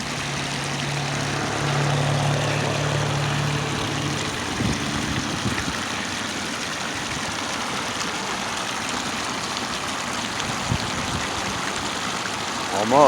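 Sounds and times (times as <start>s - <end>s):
rushing outdoor background noise: 0.0s - 13.0s.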